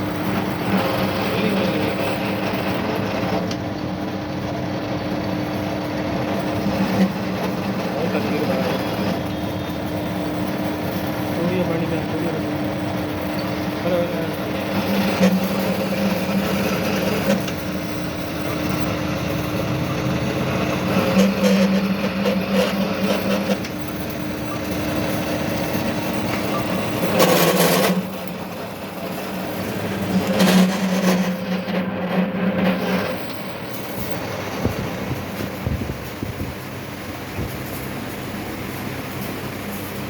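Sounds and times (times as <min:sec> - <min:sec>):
metal cutting rasp: 0:14.3 - 0:24.2, 0:24.8 - 0:33.8.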